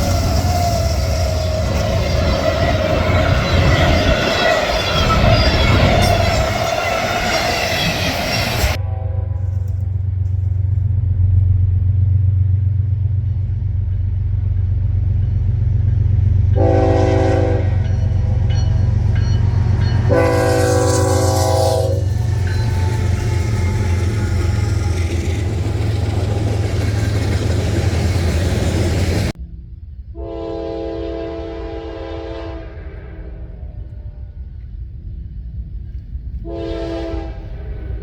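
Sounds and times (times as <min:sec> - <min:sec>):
train horn blasts: 0:00.0 - 0:10.4, 0:16.4 - 0:27.1, 0:30.1 - 0:34.5, 0:36.4 - 0:38.0
train rumbling past: 0:00.0 - 0:38.0.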